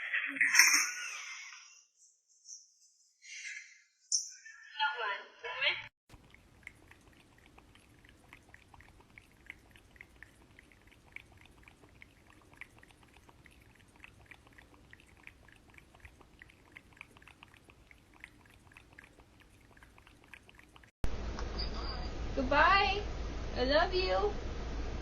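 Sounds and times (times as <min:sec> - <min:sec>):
cat lapping water: 0:06.1 - 0:21.0.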